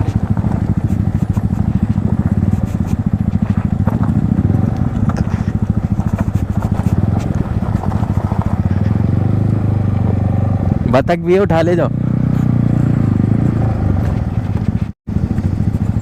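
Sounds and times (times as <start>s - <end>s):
tyres crackling on rough ground: 0.0s - 10.3s
motorcycle engine at low revs: 0.0s - 16.0s.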